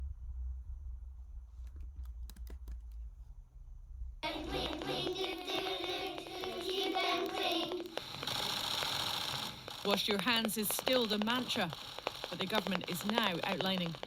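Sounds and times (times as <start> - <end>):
sharp clicks: 1.6 - 3.0, 4.2 - 14.0
audio from laptop speakers: 4.2 - 14.0
speaker crackling and popping: 4.2 - 14.0.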